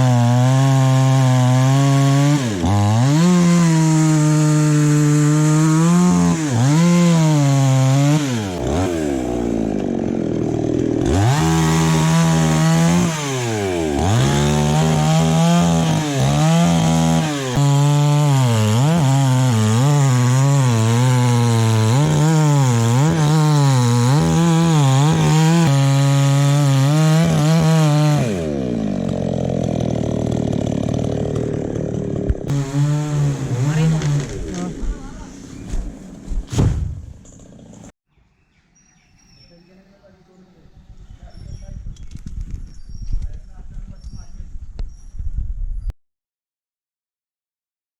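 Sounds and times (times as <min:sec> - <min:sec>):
chainsaw cutting wood: 0:00.0 - 0:37.9.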